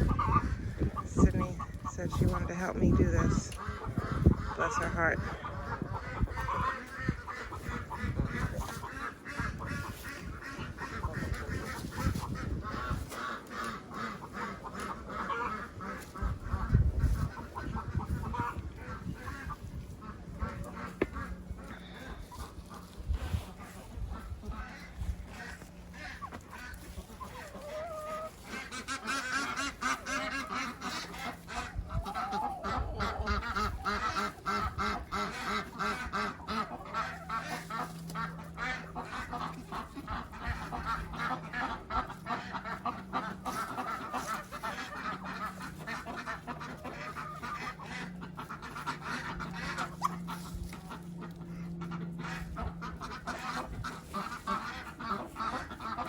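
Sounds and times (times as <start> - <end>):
ducks calling: 0.0 - 56.0
steady low drone: 28.4 - 56.0.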